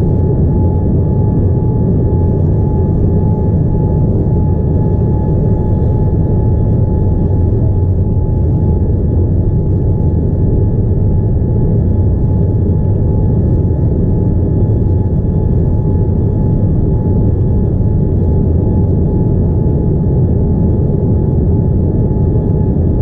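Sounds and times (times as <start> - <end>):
airliner cabin rumble: 0.0 - 23.0
mid-pitched whine: 0.0 - 23.0.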